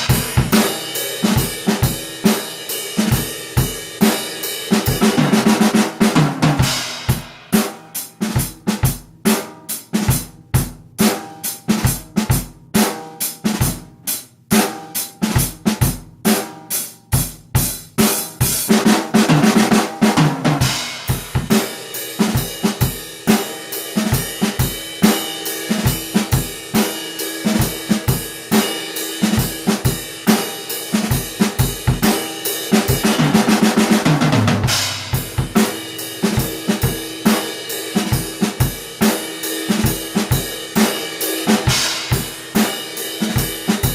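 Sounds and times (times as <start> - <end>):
drum kit groove: 0.0 - 43.9
tom drum fill: 32.8 - 38.5.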